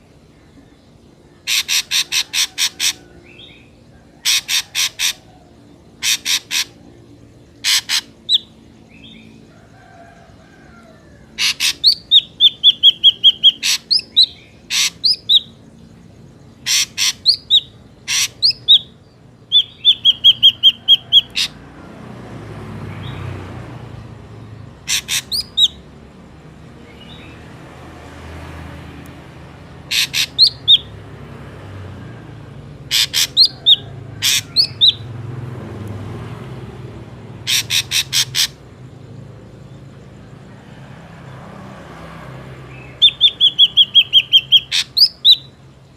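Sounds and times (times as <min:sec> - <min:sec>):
bird calling with sharp notes: 0:01.2 - 0:09.3, 0:11.3 - 0:15.7, 0:16.5 - 0:21.6, 0:24.8 - 0:25.8, 0:29.7 - 0:31.0, 0:32.8 - 0:35.2, 0:37.3 - 0:38.6, 0:42.7 - 0:45.9.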